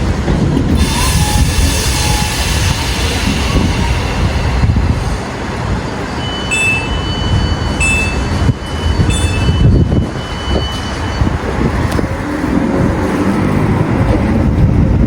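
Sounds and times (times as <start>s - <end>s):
train rumbling: 0.0s - 15.0s
high tone: 0.8s - 11.5s
short beeps: 6.0s - 11.5s.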